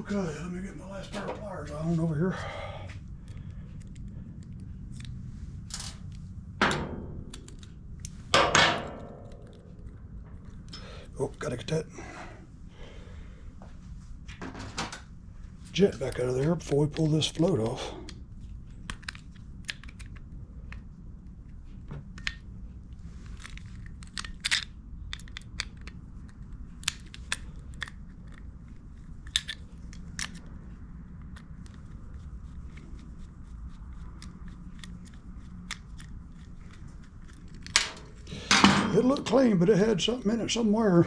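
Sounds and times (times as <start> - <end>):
steady low hum: 0.0 - 41.0
metal parts clicking and tapping: 5.7 - 10.9, 23.4 - 28.4, 29.2 - 30.5, 34.2 - 39.5.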